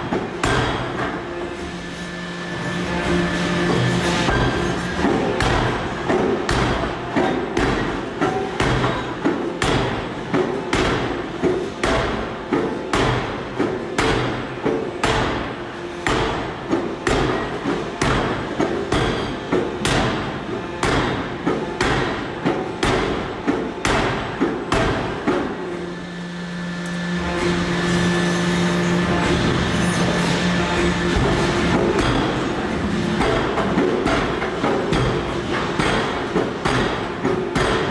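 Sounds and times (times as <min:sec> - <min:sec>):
steady hum: 0:00.0 - 0:37.9
forging hammer striking metal: 0:00.4 - 0:01.1, 0:04.3 - 0:10.0, 0:31.2 - 0:37.9.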